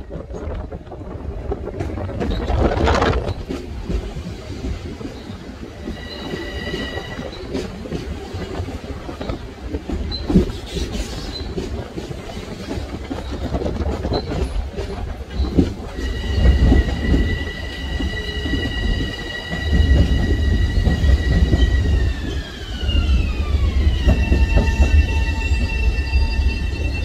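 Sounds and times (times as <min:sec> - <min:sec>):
high train whine: 0:00.0 - 0:27.0
train passing rumble: 0:00.0 - 0:27.0
wheels clicking over rail joints: 0:07.1 - 0:25.2.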